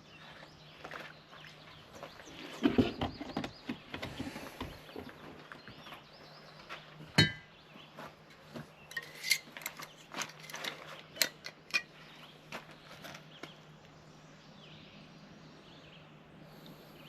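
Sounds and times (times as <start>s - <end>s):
hard objects clinking: 8.9s - 11.9s.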